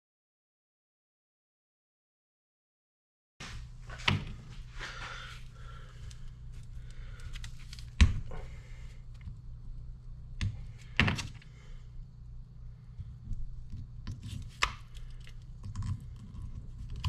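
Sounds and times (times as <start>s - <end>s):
low hum: 3.4s - 17.0s.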